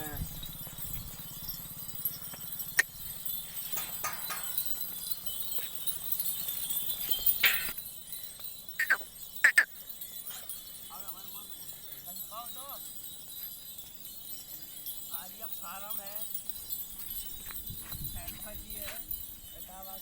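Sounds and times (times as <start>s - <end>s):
goats knocking about: 0.0s - 7.8s
high chirps: 0.0s - 12.1s.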